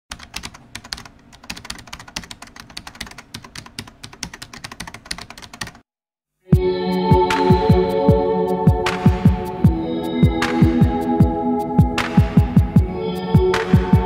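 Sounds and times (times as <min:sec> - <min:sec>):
rapid keyboard typing: 0:00.1 - 0:05.9.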